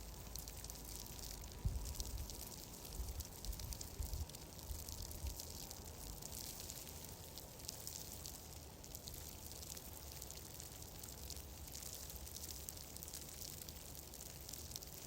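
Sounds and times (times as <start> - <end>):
fine crackling ticks: 0.0 - 15.0
soft steady hiss: 0.0 - 15.0.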